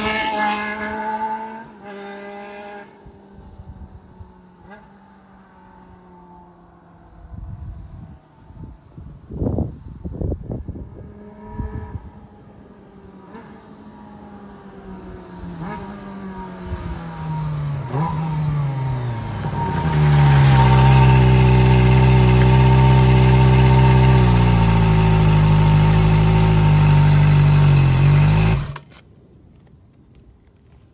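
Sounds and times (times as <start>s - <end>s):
motorcycle engine with straight pipe: 17.5s - 29.0s.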